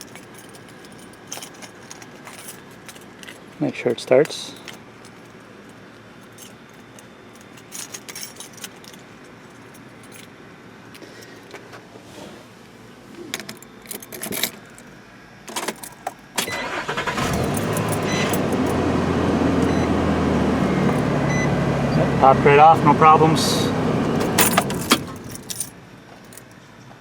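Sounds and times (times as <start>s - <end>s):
keys jangling: 0.0s - 3.6s, 6.2s - 10.4s, 13.3s - 14.9s, 15.5s - 18.9s, 24.1s - 26.6s
truck engine starting and idling: 16.4s - 26.0s.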